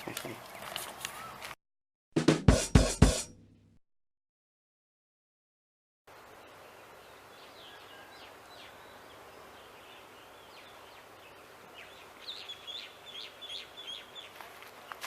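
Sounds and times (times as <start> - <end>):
small birds chirping: 0.0 - 1.6, 6.2 - 15.0
steady background hiss: 6.1 - 15.0.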